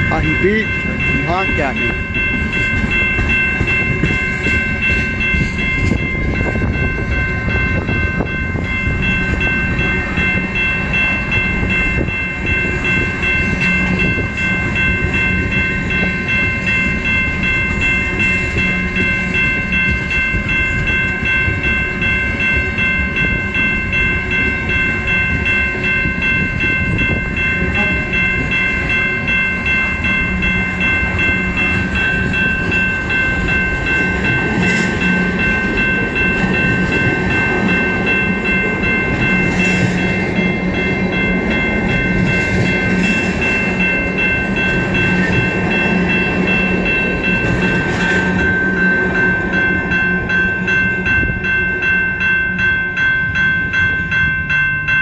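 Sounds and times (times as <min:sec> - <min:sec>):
steel wheels rumbling on rails: 0:00.0 - 0:55.0.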